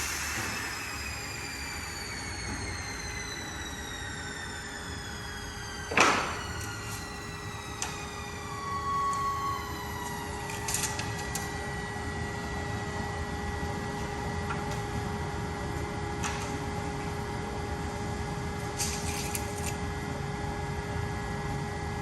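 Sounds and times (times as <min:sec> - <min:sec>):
machine cutting plywood: 0:05.9 - 0:11.8.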